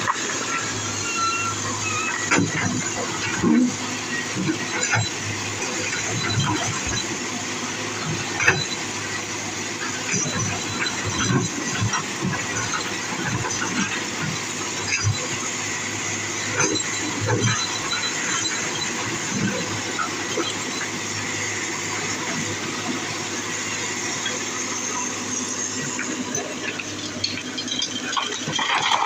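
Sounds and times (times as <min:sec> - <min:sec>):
diesel engine running: 0:00.0 - 0:29.0
high metallic squeals: 0:00.4 - 0:03.4.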